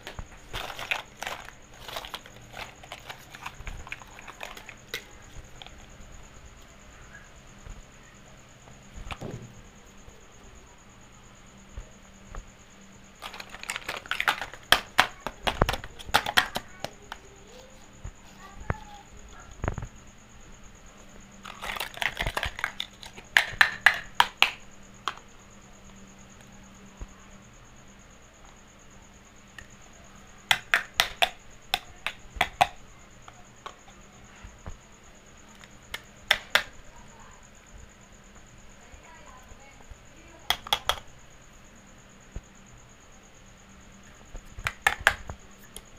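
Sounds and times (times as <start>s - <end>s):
plastic toy pieces clattering: 0.0s - 5.8s, 13.2s - 16.7s, 21.4s - 24.5s.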